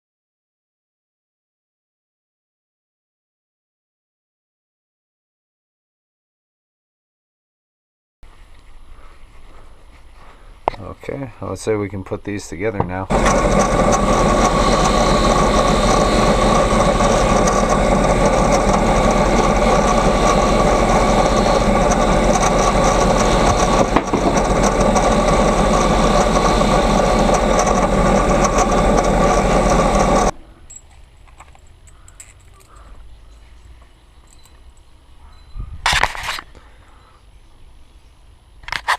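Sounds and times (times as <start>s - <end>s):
constant machine tone: 9.0s - 35.8s
loud machine running: 13.1s - 30.3s.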